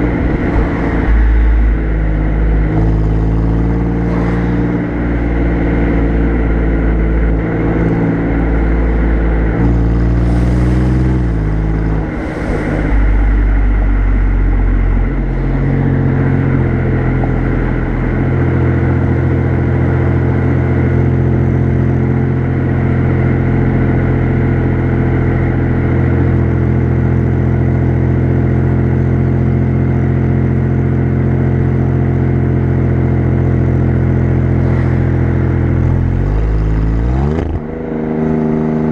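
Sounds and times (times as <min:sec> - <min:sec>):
car exhaust note: 0:00.0 - 0:38.9
hissing rushes: 0:11.6 - 0:14.9.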